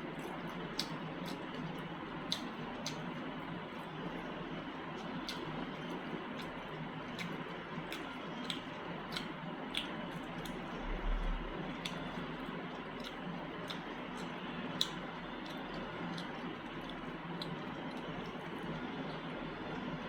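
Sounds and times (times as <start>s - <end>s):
wet squishy chewing: 0.0s - 20.0s
sharp mouth clicks: 2.3s - 3.0s, 7.2s - 10.7s.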